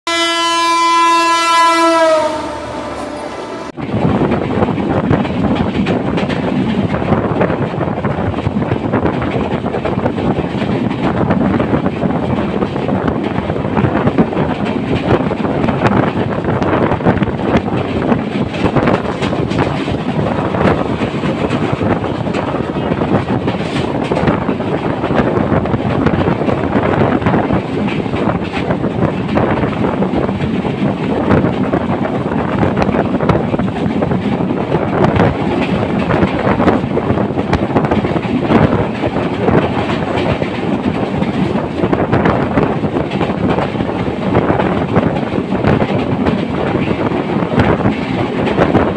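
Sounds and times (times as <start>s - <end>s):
locomotive horn: 0.1s - 3.8s
train passing at speed: 0.1s - 48.9s
wheels clattering over rails: 3.8s - 48.9s.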